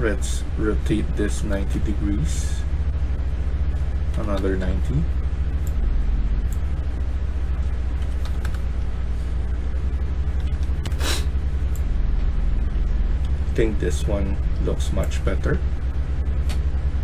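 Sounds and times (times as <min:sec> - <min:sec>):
low hum: 0:00.0 - 0:17.0
brief hiss: 0:10.9 - 0:11.3.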